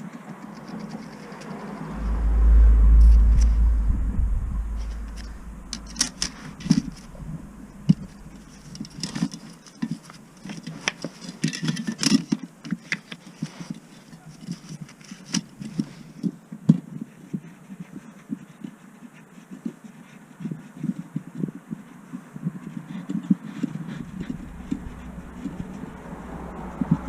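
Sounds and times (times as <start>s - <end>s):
low rumble: 1.1s - 9.3s, 23.9s - 27.0s
hand tools and metal parts clattering: 7.9s - 15.9s.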